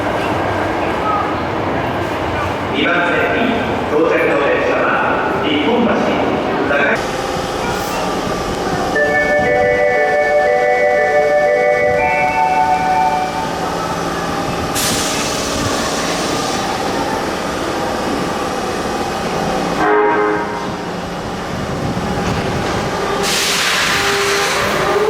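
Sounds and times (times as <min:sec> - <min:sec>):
subway train rumbling: 0:00.0 - 0:25.0
train horn: 0:09.0 - 0:13.4, 0:19.8 - 0:20.7, 0:23.2 - 0:25.0.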